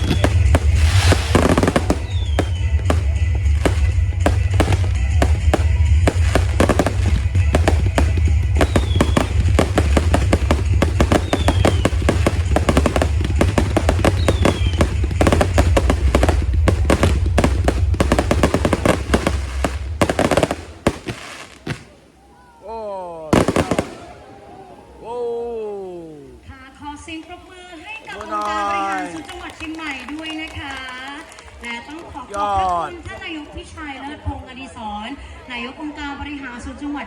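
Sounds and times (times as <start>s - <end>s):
loud music with heavy bass: 0.0s - 20.4s
fireworks crackling and popping: 0.0s - 22.3s, 23.3s - 24.4s, 25.9s - 34.0s
short falling whistles: 2.0s - 2.8s.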